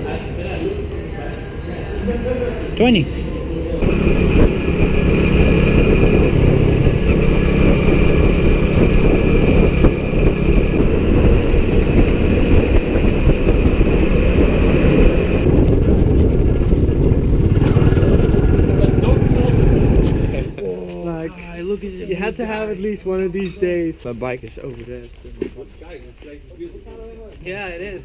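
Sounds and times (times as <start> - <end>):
motorbike engine: 3.8 - 20.6
wind rush on microphone: 3.8 - 20.6.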